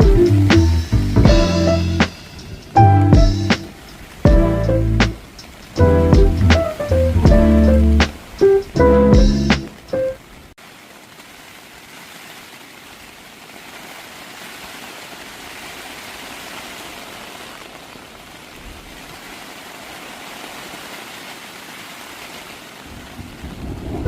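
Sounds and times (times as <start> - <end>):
steady rushing noise: 0.0 - 10.1.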